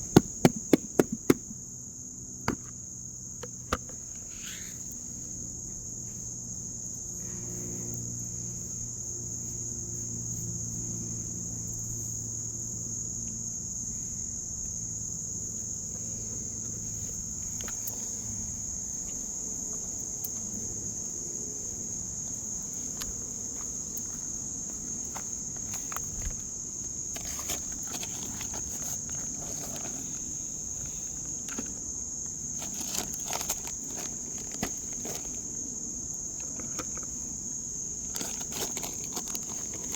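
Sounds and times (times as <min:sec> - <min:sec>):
clicks and rustles: 0:00.0 - 0:01.6, 0:22.8 - 0:35.5, 0:38.0 - 0:39.9
insects trilling: 0:00.0 - 0:39.9.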